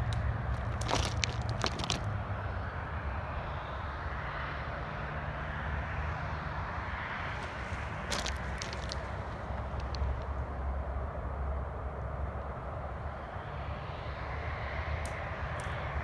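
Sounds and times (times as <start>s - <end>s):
distant engine rumble: 0.0s - 2.9s, 7.1s - 11.0s.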